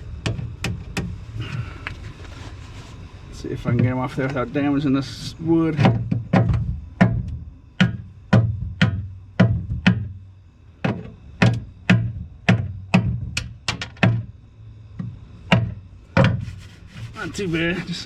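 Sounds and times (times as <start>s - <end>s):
sharp knocks on wood: 5.8s - 10.2s, 10.8s - 14.3s, 15.0s - 16.5s.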